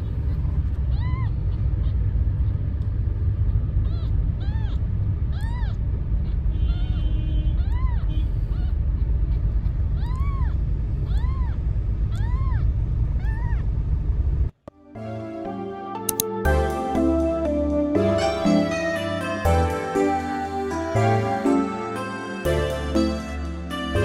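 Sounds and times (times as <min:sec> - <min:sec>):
kitten meowing: 0:03.8 - 0:05.8.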